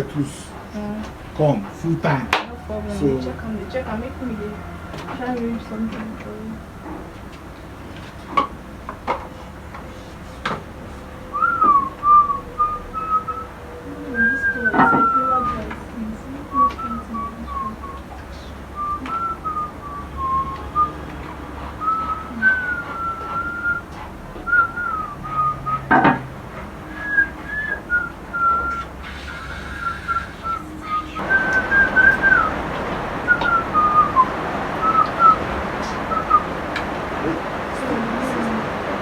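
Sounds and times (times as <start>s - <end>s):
person whistling a tune: 11.3s - 15.8s, 16.5s - 26.2s, 26.9s - 36.6s
steady hiss: 18.4s - 39.0s.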